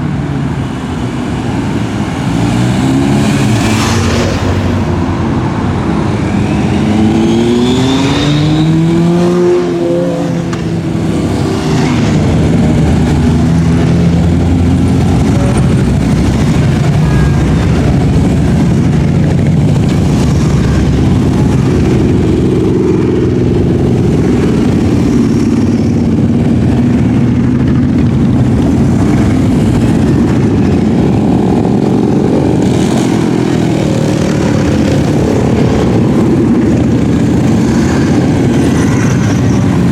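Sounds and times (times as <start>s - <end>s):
motorcycles riding past: 0.7s - 39.9s
motorcycle engine revving: 1.6s - 39.9s.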